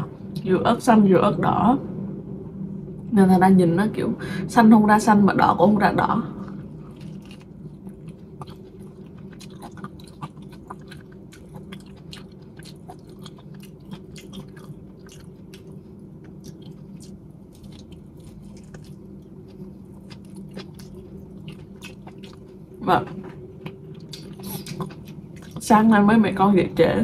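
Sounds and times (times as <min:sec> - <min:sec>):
steady low hum: 0:00.0 - 0:27.0
chewing and biting: 0:06.7 - 0:22.8, 0:23.6 - 0:25.7.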